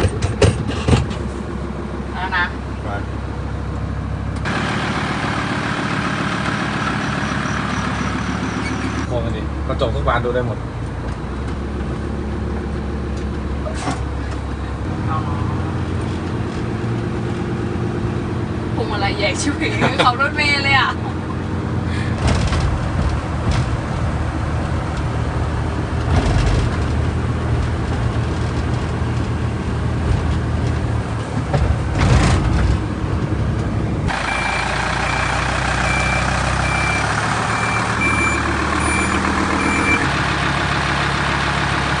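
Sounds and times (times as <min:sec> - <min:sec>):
truck engine running: 0:00.0 - 0:42.0
reversing beeper: 0:06.9 - 0:09.1, 0:34.1 - 0:40.1.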